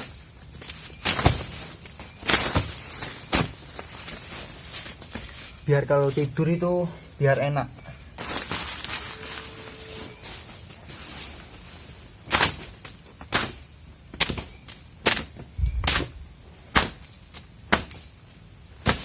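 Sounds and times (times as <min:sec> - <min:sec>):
crickets trilling: 0:00.0 - 0:19.0
broom sweeping ground: 0:08.2 - 0:12.0.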